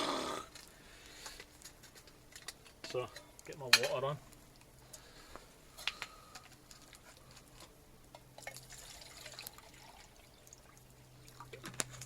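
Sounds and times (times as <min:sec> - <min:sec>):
metal camping pot clicks and knocks: 0:02.3 - 0:04.1
water trickling: 0:08.4 - 0:12.0.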